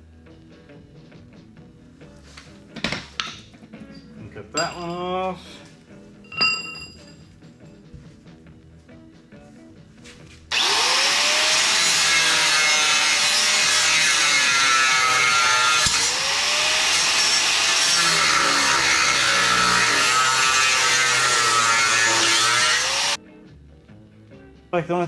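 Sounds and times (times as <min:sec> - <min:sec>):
power tool cutting steel: 0:10.5 - 0:23.2.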